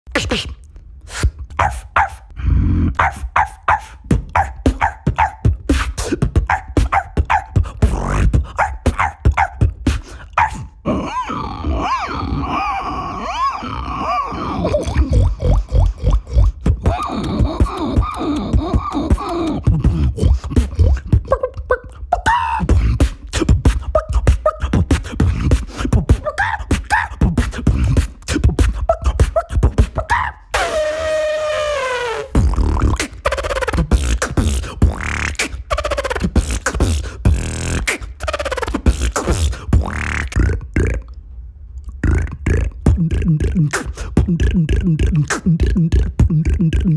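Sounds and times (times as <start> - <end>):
pitched vocal squeaks: 0.1 - 41.1, 41.9 - 46.9
beatboxer imitating dog barks: 0.1 - 41.2, 41.9 - 46.9
mouth percussion hits: 3.0 - 10.7, 14.6 - 41.2, 42.0 - 46.9
vocal pitch sweeps: 23.9 - 41.2, 42.0 - 46.9.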